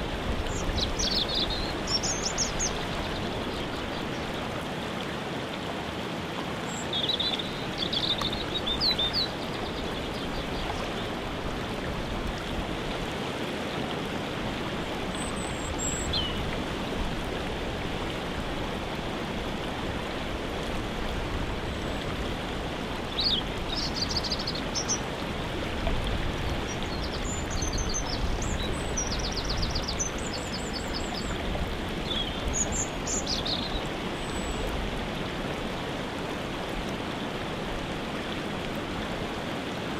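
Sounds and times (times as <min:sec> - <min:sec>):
waterfall rushing: 0:00.0 - 0:39.9
songbirds chirping and trilling: 0:00.4 - 0:04.5, 0:23.1 - 0:25.1, 0:26.5 - 0:34.8.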